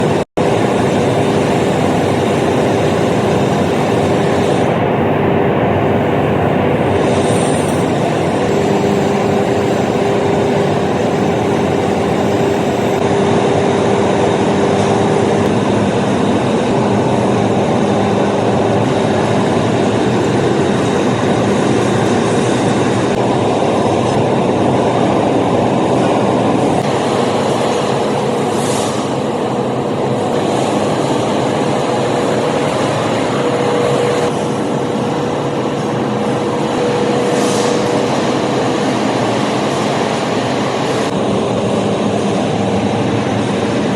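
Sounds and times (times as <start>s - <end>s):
held mechanical hum: 0.0s - 43.9s
workshop machinery running: 0.0s - 43.9s
brief hissing sweeps: 28.5s - 29.2s, 37.3s - 37.9s.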